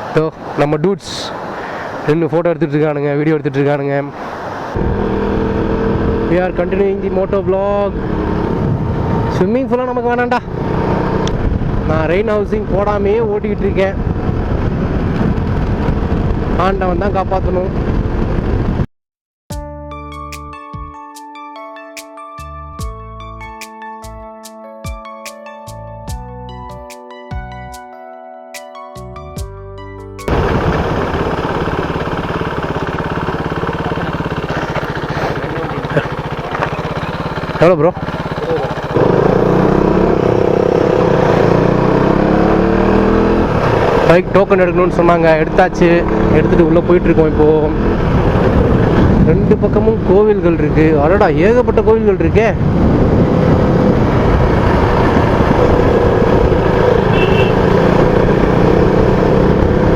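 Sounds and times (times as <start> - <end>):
road and wind noise: 0.0 - 18.9, 30.2 - 59.9
motorcycle engine idling: 30.3 - 40.1, 55.2 - 58.1
motorcycle engine running: 30.3 - 52.0, 52.6 - 59.9.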